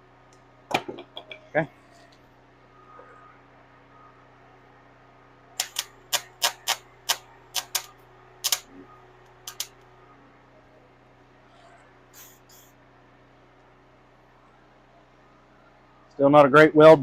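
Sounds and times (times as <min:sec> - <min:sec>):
sharp clicks: 0:05.6 - 0:09.7.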